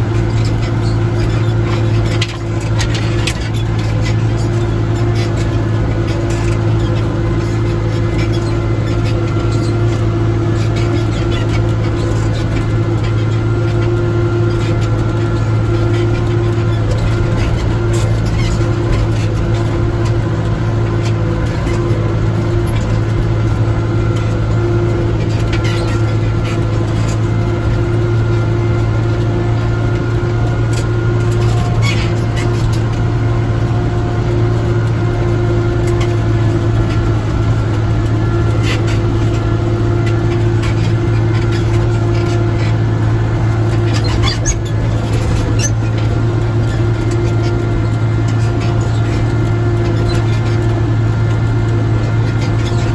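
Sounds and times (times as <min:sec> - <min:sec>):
machine rattles and clanks: 0:00.0 - 0:52.9
tractor engine droning: 0:00.0 - 0:52.9.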